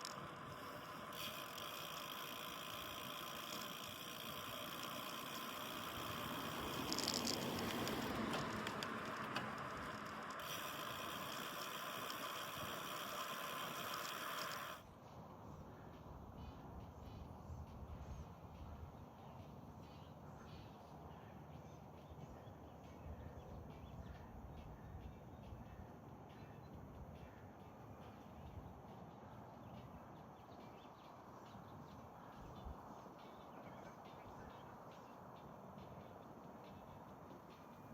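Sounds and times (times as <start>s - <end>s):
faint rattling ticks: 0.0s - 14.8s
wind and road noise: 0.0s - 19.7s
low steady rumble: 0.0s - 20.4s
faint bird chirps: 18.8s - 37.0s.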